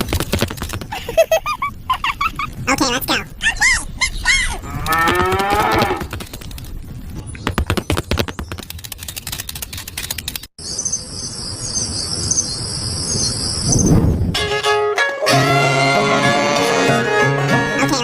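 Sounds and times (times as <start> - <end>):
sharp clicks: 0.0 - 0.9, 4.8 - 6.8, 7.4 - 10.5.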